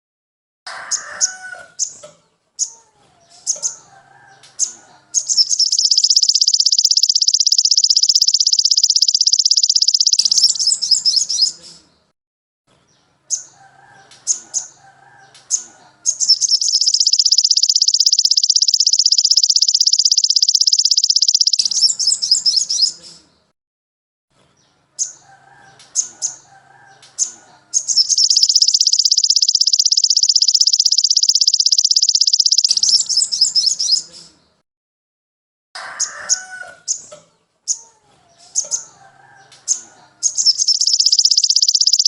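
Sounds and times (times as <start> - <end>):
songbird chirps and trills: 0.9 - 12.1, 12.8 - 23.5, 24.5 - 34.6, 36.0 - 42.0
lower warbled bird calls: 4.6 - 11.6, 15.5 - 23.0, 27.7 - 34.1, 39.7 - 42.0.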